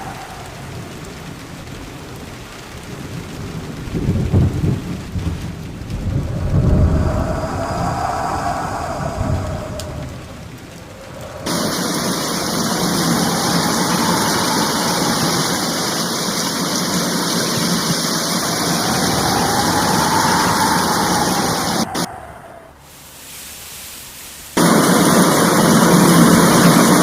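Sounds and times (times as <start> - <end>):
thunder rumble: 0.0 - 22.9, 24.6 - 27.0
heavy rain pouring: 0.0 - 27.0.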